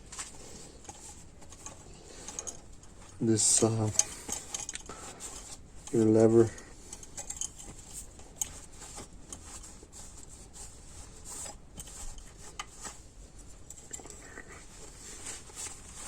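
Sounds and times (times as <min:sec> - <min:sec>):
metal parts rubbing: 0:00.1 - 0:16.0
small metal parts clicking: 0:00.8 - 0:04.9, 0:05.8 - 0:08.6.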